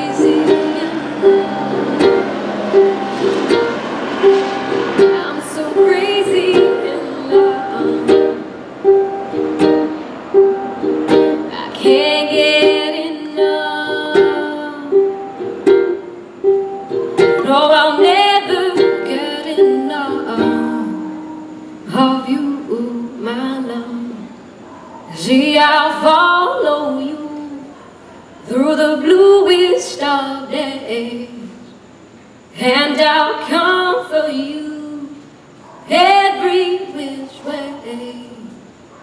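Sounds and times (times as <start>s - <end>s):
ukulele playing: 0.0s - 24.0s.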